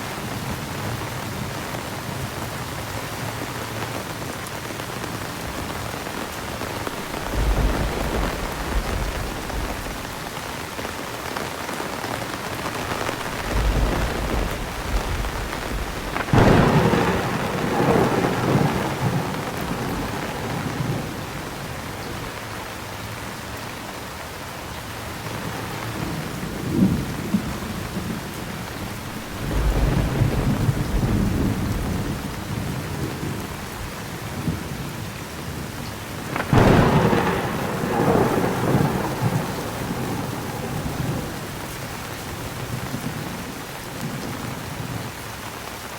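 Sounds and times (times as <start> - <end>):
heavy rain: 0.0 - 45.9
sharp crackling thunderclap: 5.1 - 22.4, 25.9 - 45.0
thunder rolling: 5.8 - 11.2, 11.9 - 22.3, 26.5 - 33.7, 36.2 - 43.4.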